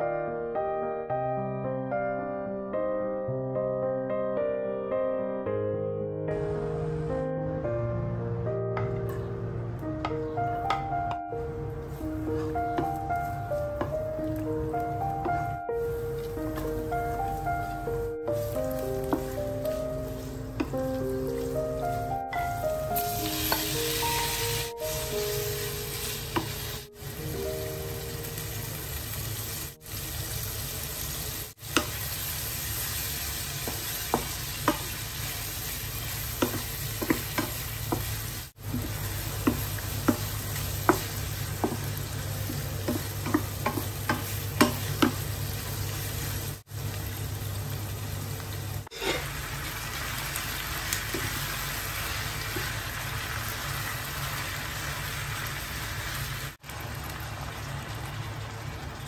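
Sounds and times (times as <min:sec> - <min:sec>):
food sizzling in a frying pan: 0:11.8 - 0:59.0
wooden spatula scraping a pan: 0:48.9 - 0:49.4.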